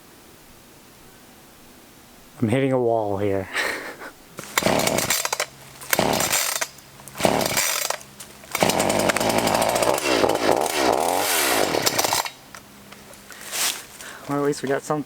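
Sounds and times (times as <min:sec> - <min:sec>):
chainsaw sputtering and running: 0:04.4 - 0:12.5.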